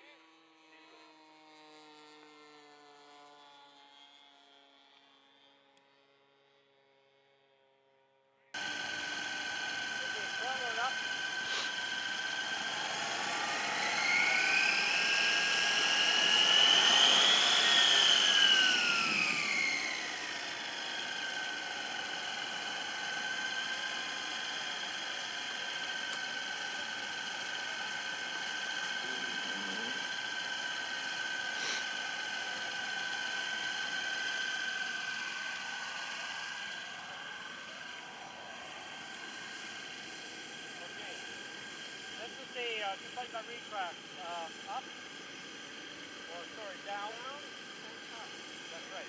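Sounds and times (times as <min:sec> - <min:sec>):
model airplane motor whining: 0:00.0 - 0:06.7, 0:08.6 - 0:49.0.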